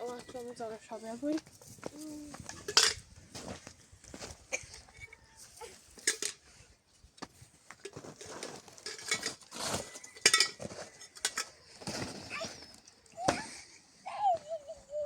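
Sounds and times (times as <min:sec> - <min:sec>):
objects clinking and scraping: 0:02.4 - 0:03.0, 0:06.0 - 0:06.6, 0:07.8 - 0:12.9.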